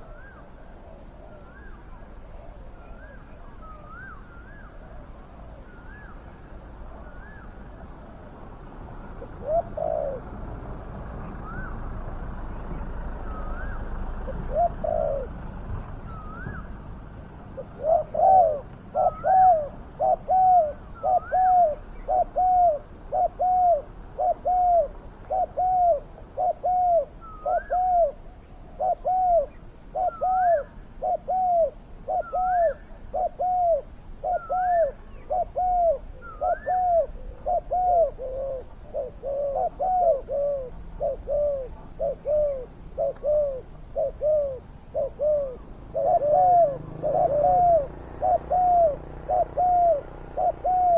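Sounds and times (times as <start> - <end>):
doves cooing: 0.0 - 50.9.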